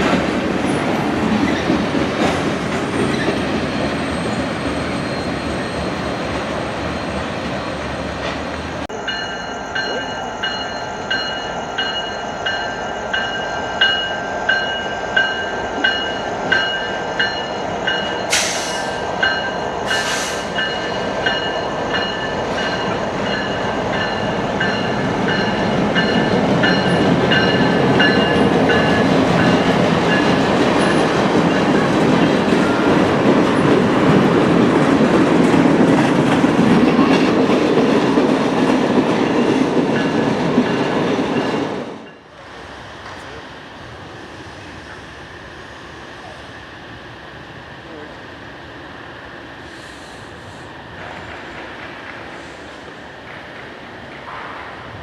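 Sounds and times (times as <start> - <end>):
freight train rumbling: 0.0 - 55.0
bell ringing: 9.0 - 18.3
short hissing bursts: 18.3 - 19.0, 19.9 - 20.6, 49.6 - 50.7.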